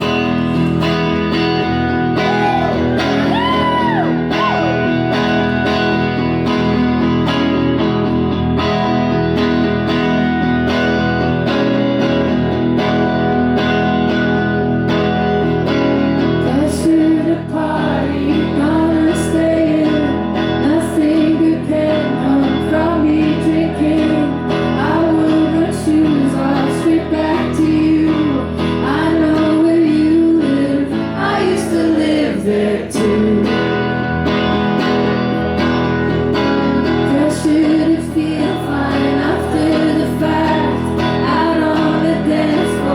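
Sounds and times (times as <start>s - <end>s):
woman singing: 0.0s - 5.6s, 16.2s - 34.6s, 36.1s - 42.9s
guitar chords: 0.0s - 42.9s.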